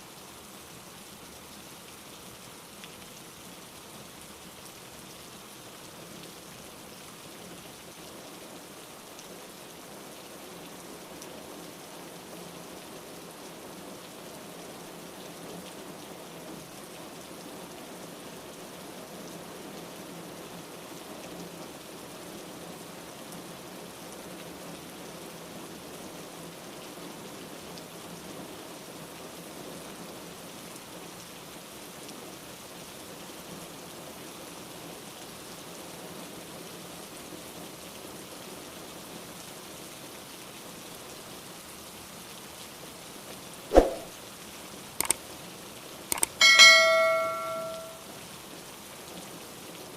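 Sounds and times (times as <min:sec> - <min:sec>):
steady rain hiss: 0:00.0 - 0:49.9
faint raindrop ticks: 0:02.7 - 0:05.1, 0:45.0 - 0:45.4, 0:46.1 - 0:48.0.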